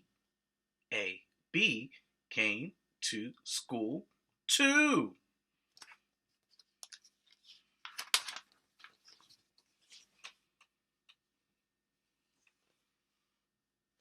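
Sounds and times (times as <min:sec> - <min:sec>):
book page rustling: 0:05.8 - 0:10.7.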